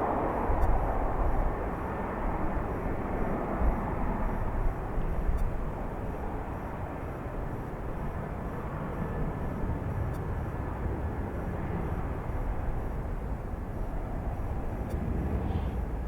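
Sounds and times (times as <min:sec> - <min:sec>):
airliner jet engines running: 0:00.0 - 0:16.0.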